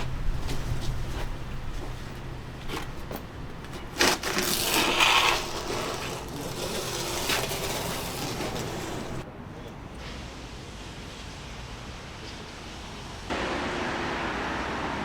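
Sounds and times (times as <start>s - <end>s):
scraping or rubbing: 0.0s - 9.2s.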